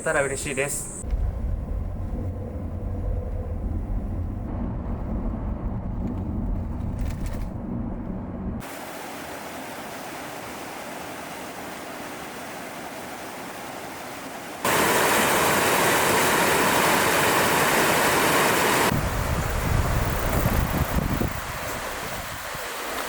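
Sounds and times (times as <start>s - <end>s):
wind rumble on microphone: 1.0s - 8.6s, 18.8s - 23.0s
rushing mountain stream: 8.6s - 23.0s.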